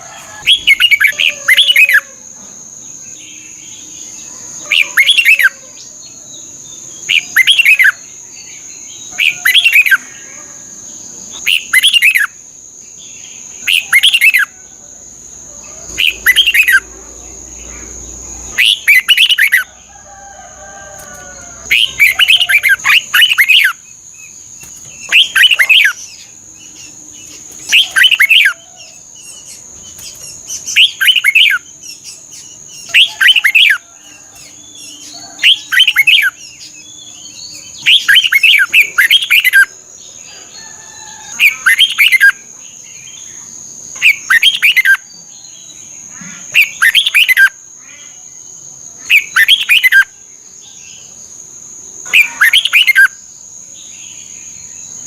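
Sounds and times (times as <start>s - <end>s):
bulbul singing warbled phrases: 3.3s - 5.8s, 6.4s - 10.4s, 11.2s - 12.4s, 13.0s - 14.5s, 15.6s - 19.7s, 21.6s - 33.8s, 34.4s - 39.7s, 46.2s - 48.2s, 52.0s - 53.2s.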